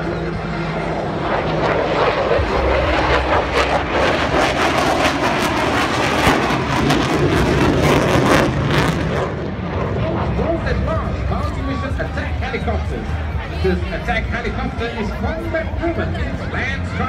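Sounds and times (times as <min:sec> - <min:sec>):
fighter jet flying past: 0:00.0 - 0:12.4.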